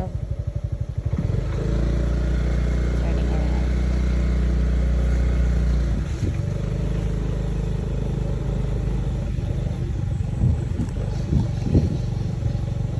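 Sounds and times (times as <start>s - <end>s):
vehicle engine running: 0.0s - 12.9s.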